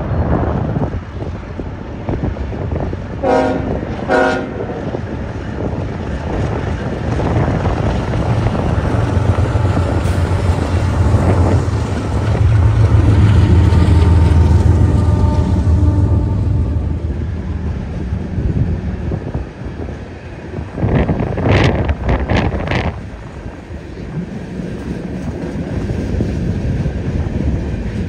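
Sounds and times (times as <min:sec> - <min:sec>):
diesel locomotive engine rumble: 0:00.0 - 0:28.0
train horn blasts: 0:03.2 - 0:04.8, 0:10.0 - 0:17.5.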